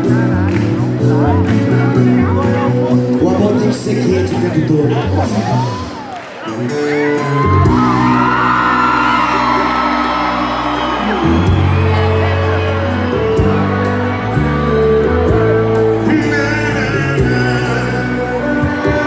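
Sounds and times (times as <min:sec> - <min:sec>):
live band playing: 0:00.0 - 0:19.0
audience whooping: 0:05.2 - 0:19.0.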